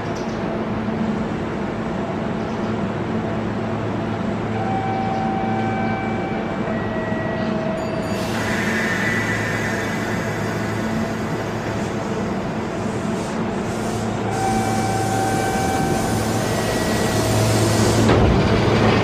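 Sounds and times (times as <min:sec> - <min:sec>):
train equipment low hum: 0:00.0 - 0:19.0
bright hissing or ringing noise: 0:07.7 - 0:11.9.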